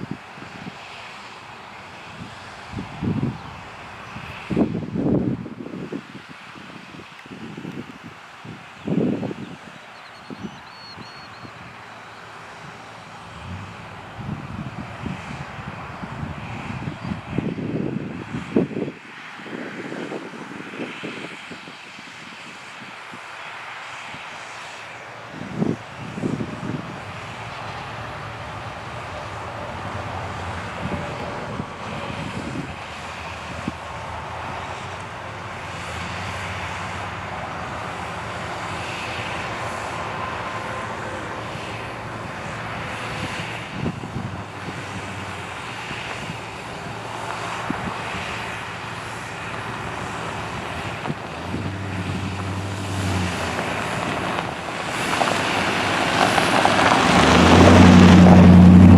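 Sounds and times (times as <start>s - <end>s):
tractor diesel engine running: 26.0s - 58.9s.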